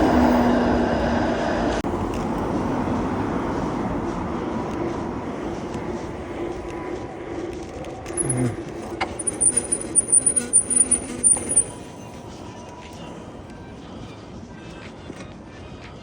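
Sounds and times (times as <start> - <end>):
road and wind noise: 0.0 - 16.0
high-pitched squeaks: 8.1 - 12.1.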